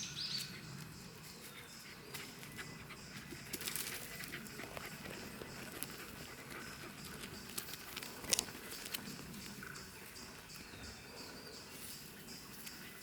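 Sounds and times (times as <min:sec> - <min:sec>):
dog panting: 0:01.4 - 0:09.1.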